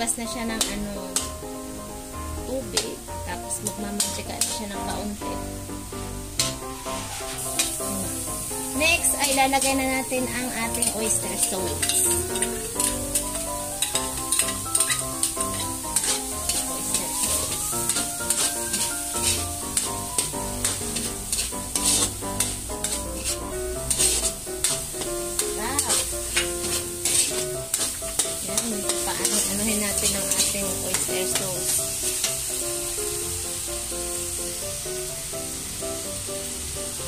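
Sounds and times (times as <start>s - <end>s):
background music: 0.0s - 37.0s
meat sizzling in a wok: 0.0s - 37.0s
spatula scraping a wok: 0.5s - 1.4s, 3.6s - 5.0s, 6.0s - 32.6s.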